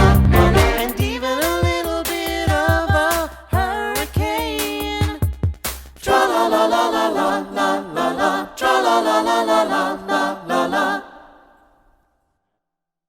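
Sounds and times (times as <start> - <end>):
sharp percussive hits: 0.0 - 2.2
voices singing a cappella harmony: 0.0 - 5.3, 6.0 - 12.0.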